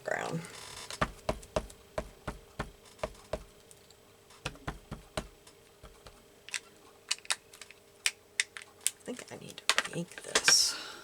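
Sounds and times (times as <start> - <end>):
rubber stamp tapping on paper: 0.9 - 3.5, 4.4 - 6.2.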